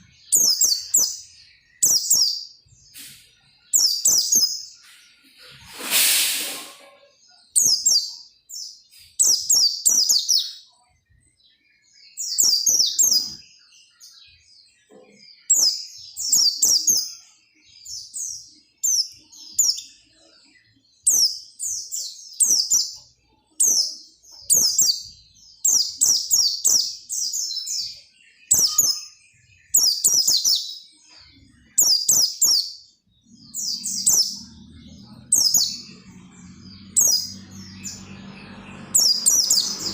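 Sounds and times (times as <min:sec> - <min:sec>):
short rushing noise: 0:05.6 - 0:06.9
bird twittering: 0:23.6 - 0:30.7.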